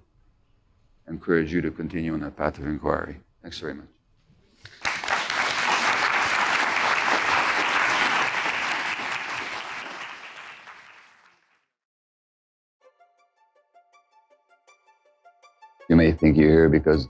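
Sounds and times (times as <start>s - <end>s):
audience applauding: 4.7s - 11.5s.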